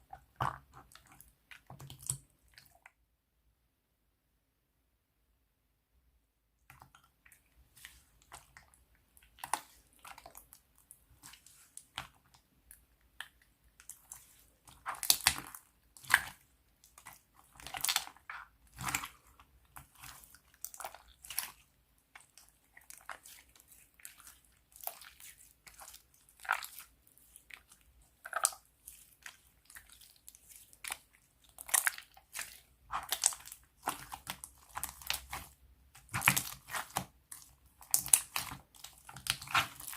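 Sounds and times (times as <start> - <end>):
slime crackling and popping: 14.8 - 21.6, 24.4 - 39.9.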